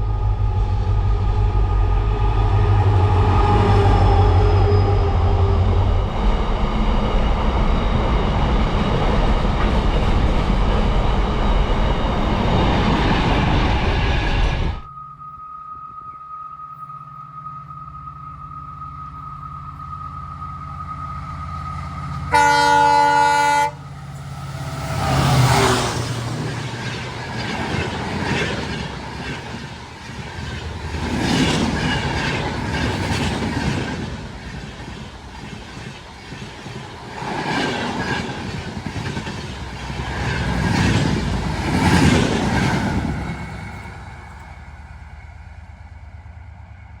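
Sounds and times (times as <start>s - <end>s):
locomotive horn blast: 18.4s - 25.2s.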